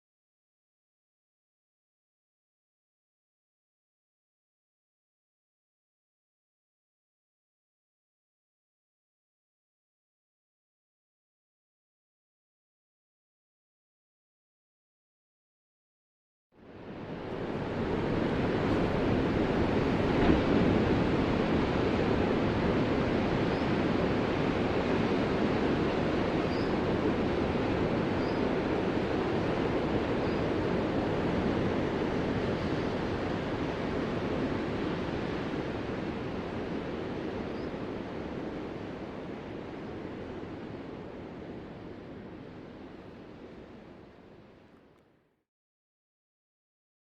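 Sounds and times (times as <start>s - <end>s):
ocean surf: 16.6s - 44.5s.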